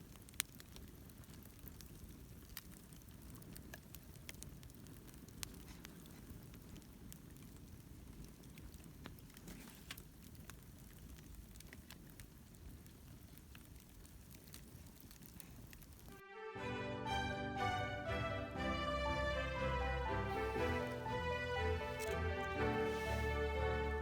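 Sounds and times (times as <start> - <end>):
wood fire crackling: 0.0 - 16.2, 17.0 - 24.0
music: 16.1 - 24.0.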